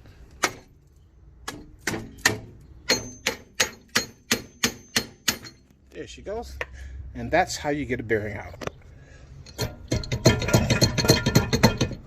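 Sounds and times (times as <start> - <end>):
hammer striking metal: 1.4 - 5.7.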